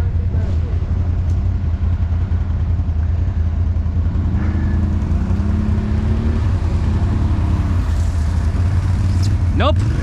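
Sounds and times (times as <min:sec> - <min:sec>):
atv engine running: 0:00.0 - 0:10.0.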